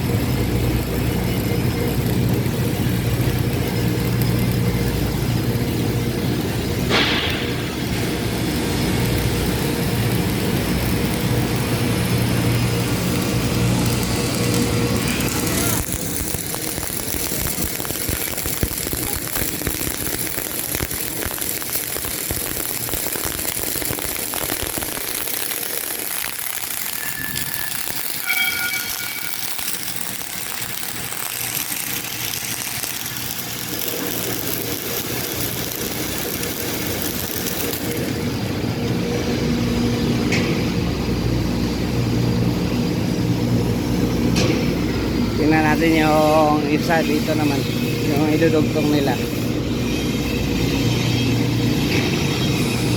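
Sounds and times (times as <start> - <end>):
machinery hum: 0.0 - 52.9
short beeps: 27.0 - 29.7.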